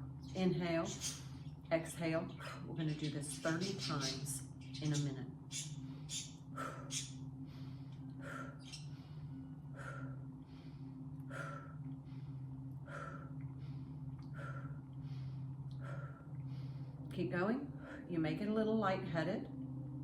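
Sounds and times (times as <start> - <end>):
low hum: 0.0 - 20.0
person breathing forcefully: 5.8 - 17.1.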